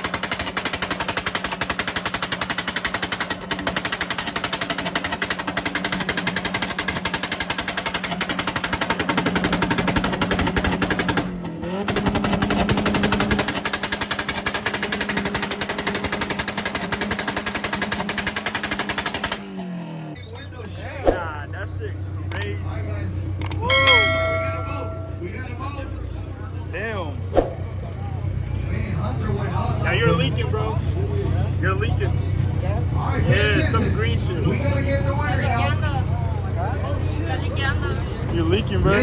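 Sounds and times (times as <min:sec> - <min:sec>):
exhaust pops and bangs: 0:00.0 - 0:19.3.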